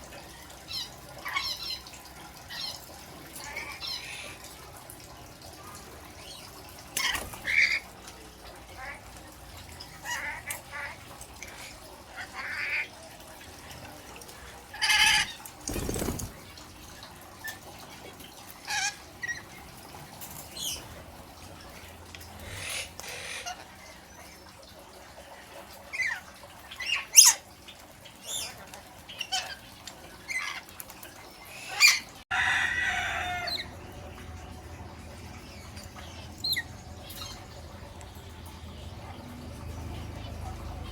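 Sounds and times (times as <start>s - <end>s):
parrot squawking and chirping: 0.7s - 1.9s, 3.4s - 4.4s, 7.0s - 7.9s, 9.9s - 12.9s, 14.7s - 15.5s, 18.6s - 19.6s, 22.4s - 24.3s, 25.9s - 27.5s, 28.2s - 30.8s, 31.5s - 33.8s, 35.5s - 37.6s.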